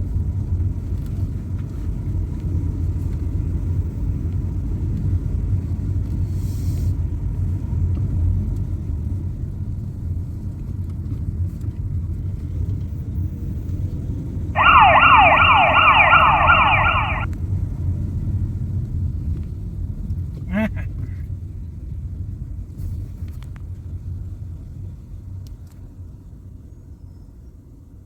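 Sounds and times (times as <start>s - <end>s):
fire engine siren yelp: 14.6s - 17.3s.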